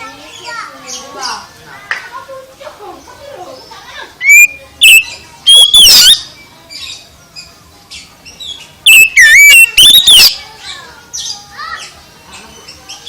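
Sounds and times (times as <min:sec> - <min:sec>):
faint bird chirps: 0:02.9 - 0:13.0
bird singing whistled notes: 0:03.0 - 0:13.0.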